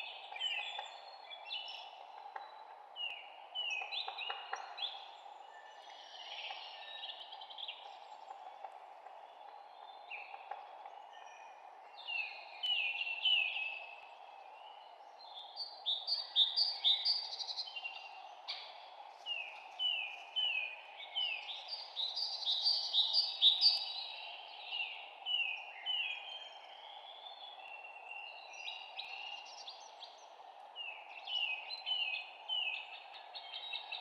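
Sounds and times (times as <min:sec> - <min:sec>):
songbirds singing: 0:00.0 - 0:34.0.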